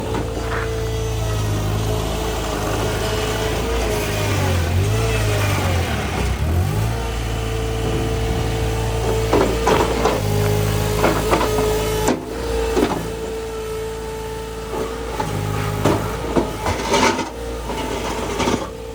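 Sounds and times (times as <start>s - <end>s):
diesel engine under load: 0.0s - 18.9s
metal clanks: 15.2s - 18.8s.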